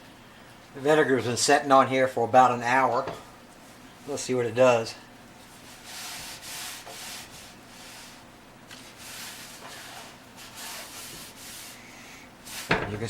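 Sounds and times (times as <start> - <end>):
hand rubbing rusty metal: 5.5 - 13.0.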